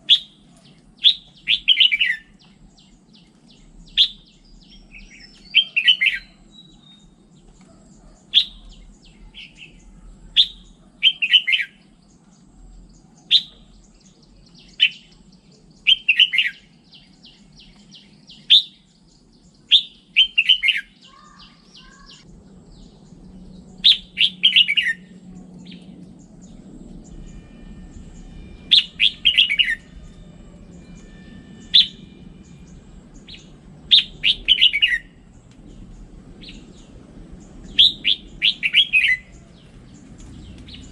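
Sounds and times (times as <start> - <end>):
bird singing: 0.0 - 40.9.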